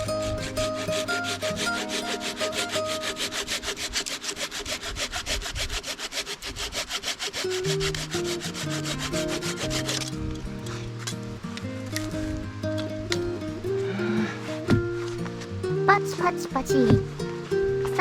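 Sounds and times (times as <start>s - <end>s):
hand tool rasping wood: 0.0s - 10.2s.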